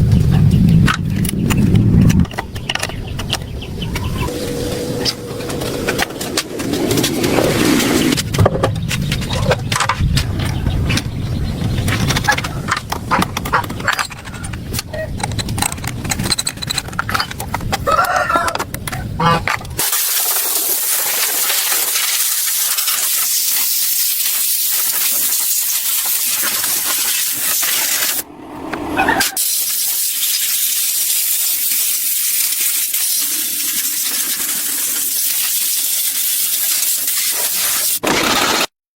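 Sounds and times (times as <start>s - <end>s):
loud hissing spray: 4.2s - 8.2s, 19.8s - 28.3s, 29.3s - 38.0s.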